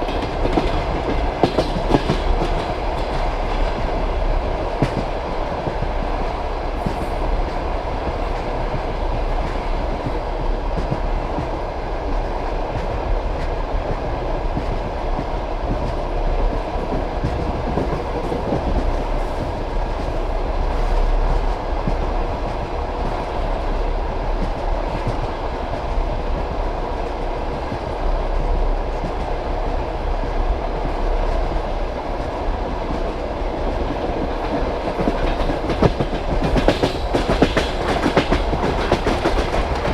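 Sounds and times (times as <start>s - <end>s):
wheels clacking over rail joints: 0.0s - 8.5s, 33.8s - 39.9s
train carriage rumbling on track: 0.0s - 39.9s.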